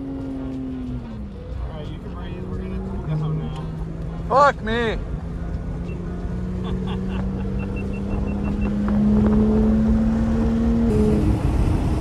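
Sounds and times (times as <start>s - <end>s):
car cabin road noise: 0.0s - 12.0s
car engine accelerating: 0.0s - 12.0s
short high beeps: 7.6s - 8.7s.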